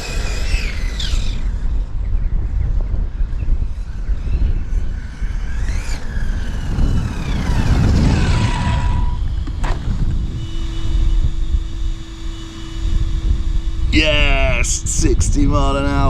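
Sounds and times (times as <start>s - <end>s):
electric motor whining: 0.0s - 1.9s, 4.0s - 13.9s
wind rumbling on microphone: 0.0s - 16.0s.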